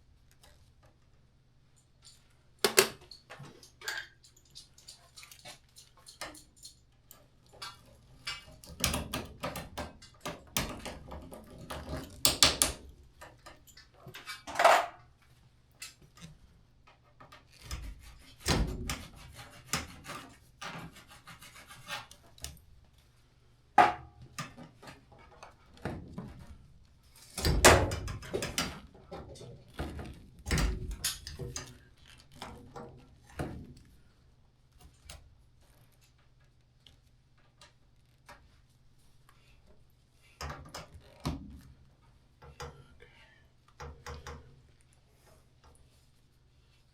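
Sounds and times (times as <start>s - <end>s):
tools knocking and scraping: 7.6s - 15.0s, 17.3s - 22.3s, 23.8s - 25.4s, 27.3s - 31.8s.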